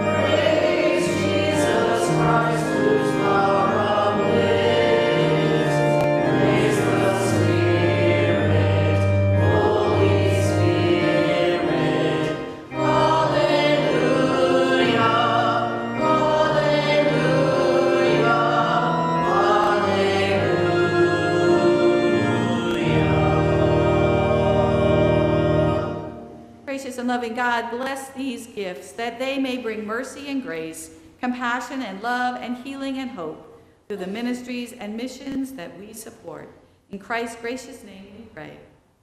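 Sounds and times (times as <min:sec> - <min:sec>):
church choir singing: 0:00.0 - 0:26.6.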